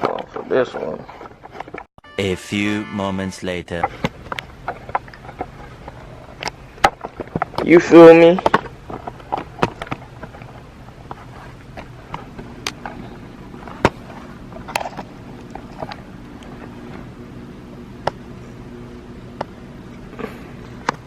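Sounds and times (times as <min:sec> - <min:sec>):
faint steady hum: 0:00.0 - 0:21.0
handling clicks and knocks: 0:03.8 - 0:14.0.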